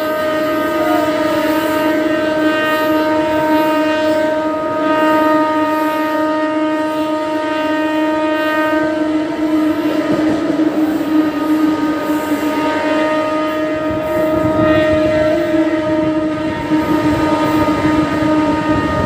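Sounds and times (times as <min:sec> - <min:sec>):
loud steady pitched tone: 0:00.0 - 0:19.0
rumbling track noise: 0:00.0 - 0:19.0.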